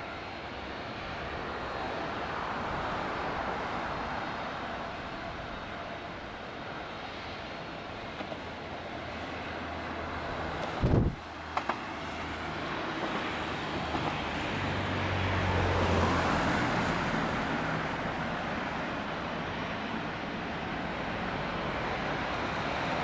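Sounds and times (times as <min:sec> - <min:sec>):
jet engine rumble: 0:00.0 - 0:23.0
wind gust on microphone: 0:10.3 - 0:11.2.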